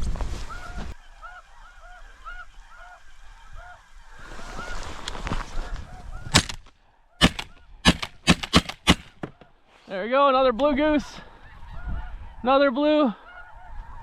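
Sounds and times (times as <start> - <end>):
geese calling: 0.5 - 5.0, 7.2 - 9.6, 11.3 - 14.0
gunshot: 6.4 - 6.6, 7.2 - 9.3.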